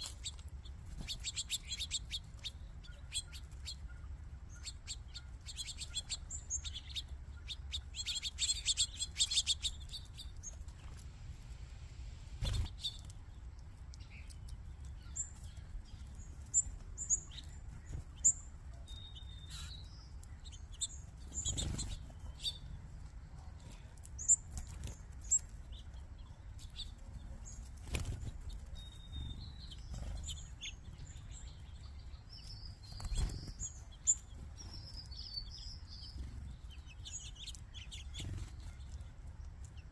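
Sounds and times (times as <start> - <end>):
small birds chirping: 0.0 - 39.9
wings flapping: 27.6 - 28.6, 32.9 - 33.7.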